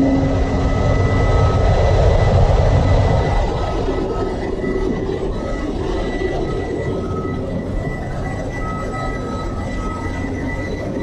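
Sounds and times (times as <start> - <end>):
engine room machinery rumble: 0.0 - 11.0
faint steady machine whines: 0.0 - 11.0.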